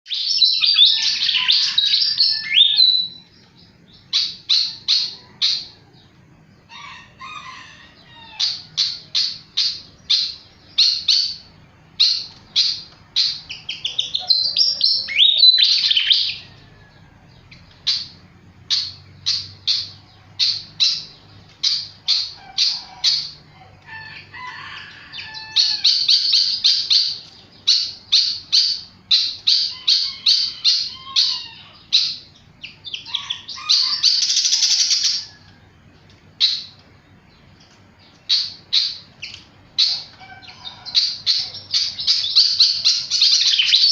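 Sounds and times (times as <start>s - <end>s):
flycatcher singing: 0.1s - 43.9s.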